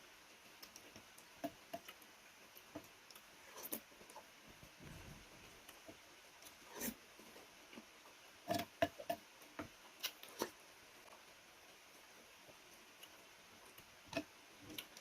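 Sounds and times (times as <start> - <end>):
soft chewing: 0.5 - 11.2.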